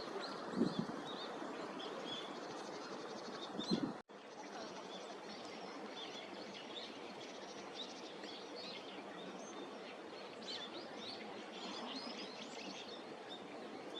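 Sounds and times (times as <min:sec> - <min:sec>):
small birds chirping: 0:00.0 - 0:13.9.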